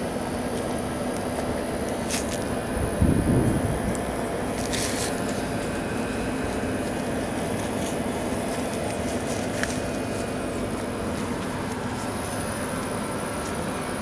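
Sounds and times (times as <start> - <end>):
car wash machinery hum: 0.0 - 14.0.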